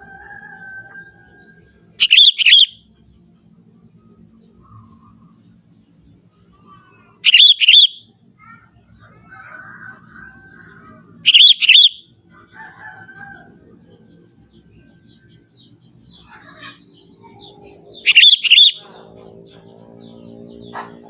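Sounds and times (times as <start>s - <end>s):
bubbling wavering bird call: 2.0s - 2.7s, 7.2s - 8.0s, 11.3s - 12.0s, 18.0s - 18.8s
faint bird chirps: 2.0s - 2.8s, 6.5s - 12.0s, 16.2s - 19.1s.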